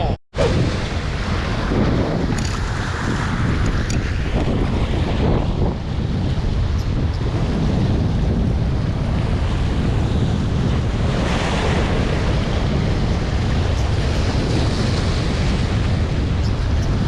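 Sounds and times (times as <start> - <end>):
wind buffeting microphone: 0.0 - 17.0
sea waves: 0.4 - 17.0.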